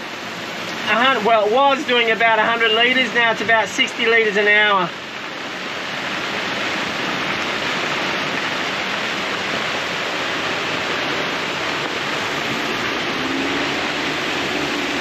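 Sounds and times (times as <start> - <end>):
heavy rain pouring: 0.0 - 15.0
strong wind: 3.2 - 15.0.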